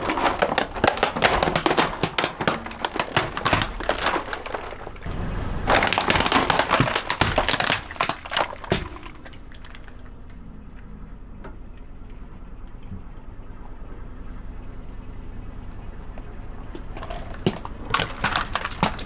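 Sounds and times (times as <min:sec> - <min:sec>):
tyre crushing brittle objects: 0:00.0 - 0:05.1, 0:05.7 - 0:10.3, 0:17.0 - 0:19.0
low steady rumble: 0:00.0 - 0:19.0.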